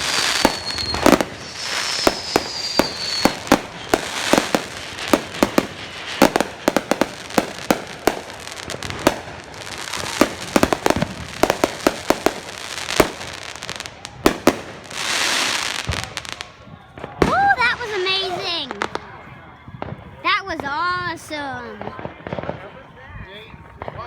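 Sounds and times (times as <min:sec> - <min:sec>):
fireworks hissing: 0:00.0 - 0:16.5
fireworks bangs: 0:00.0 - 0:23.0
fireworks crackle: 0:00.0 - 0:24.0.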